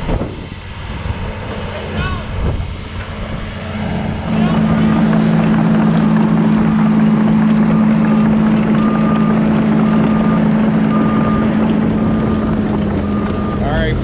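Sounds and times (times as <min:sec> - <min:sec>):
wind on microphone: 0:00.0 - 0:01.5, 0:02.2 - 0:07.6
excavator diesel engine running: 0:00.0 - 0:14.0.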